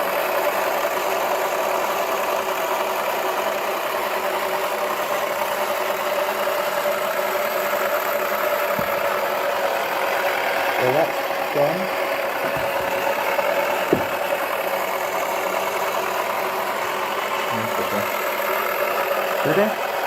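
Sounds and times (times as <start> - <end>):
low thump: 8.8 - 9.1, 12.4 - 14.4.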